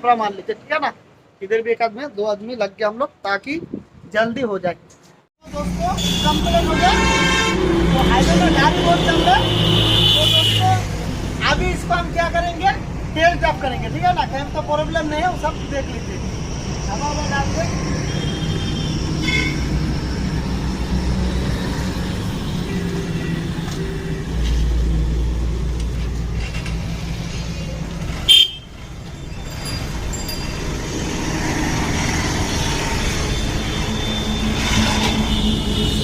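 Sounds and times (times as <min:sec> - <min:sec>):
vehicle horns tooting: 0:05.8 - 0:10.8, 0:28.2 - 0:28.8, 0:32.5 - 0:36.0.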